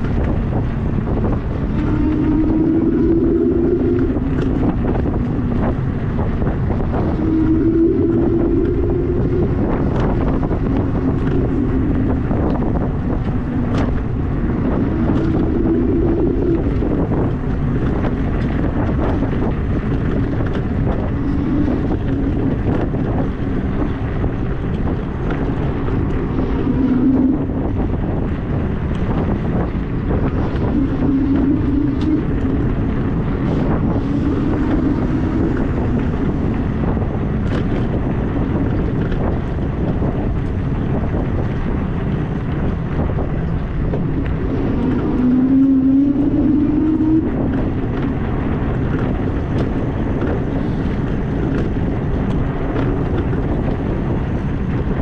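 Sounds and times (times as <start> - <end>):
wind buffeting microphone: 0.0 - 55.0
electric motor hum: 0.8 - 18.5.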